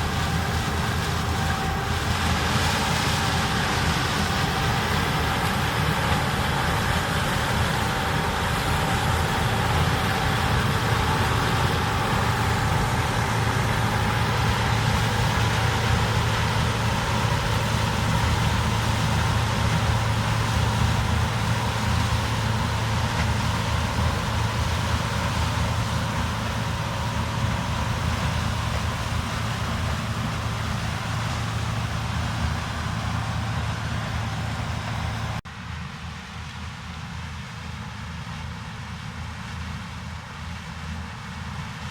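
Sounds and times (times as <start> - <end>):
diesel farm machinery running: 0.0 - 41.9.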